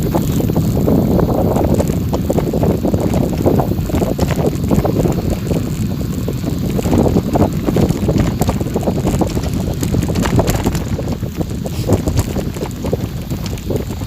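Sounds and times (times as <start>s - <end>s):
small clicks and rattles: 0.0s - 14.0s
wind buffeting microphone: 0.0s - 14.0s.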